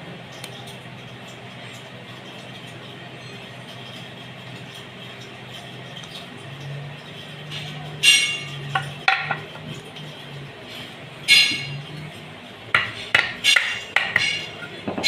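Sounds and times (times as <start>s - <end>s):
metal striking metal: 11.3s - 11.8s.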